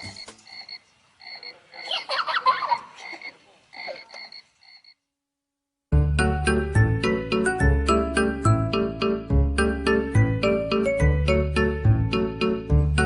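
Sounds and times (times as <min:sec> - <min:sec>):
frogs croaking: 0:00.0 - 0:05.1
music: 0:05.9 - 0:13.0.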